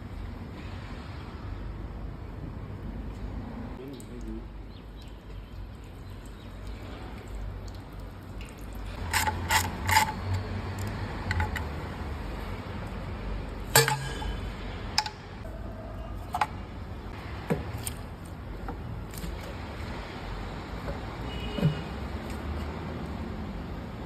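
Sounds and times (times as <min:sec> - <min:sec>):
metal tools clinking: 0:09.0 - 0:10.5.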